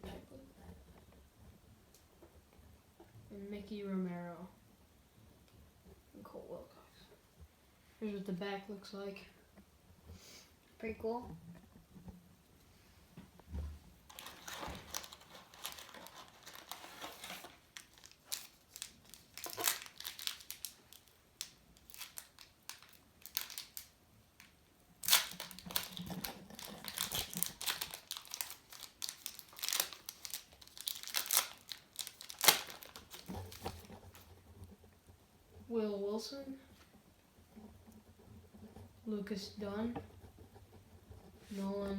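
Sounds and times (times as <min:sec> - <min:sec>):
plastic wrapper crinkling and tearing: 0:14.1 - 0:34.3.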